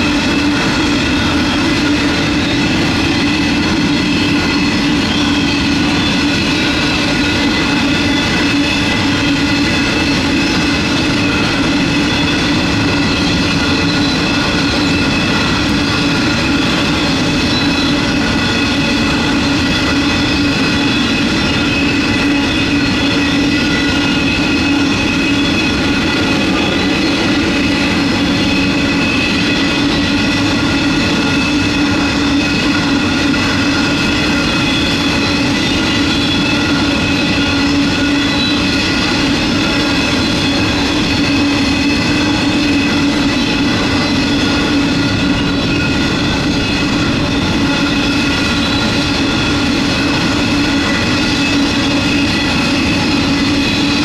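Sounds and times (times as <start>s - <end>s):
high ringing tones: 0.0s - 54.0s
train wheels rumbling on rail: 0.0s - 54.0s.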